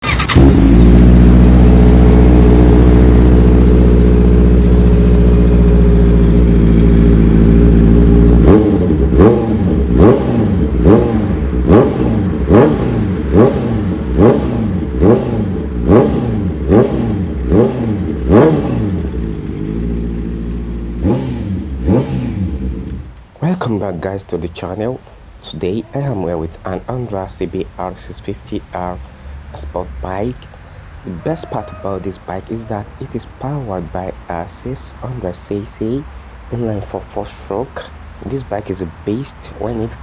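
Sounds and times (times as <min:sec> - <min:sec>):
motorbike engine revving: 0:00.0 - 0:23.2.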